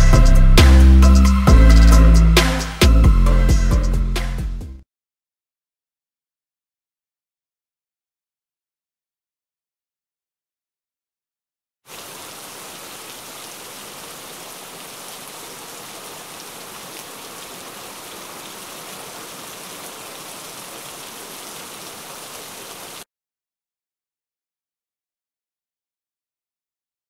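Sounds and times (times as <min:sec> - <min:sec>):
rain on stone paving: 0:11.9 - 0:23.1.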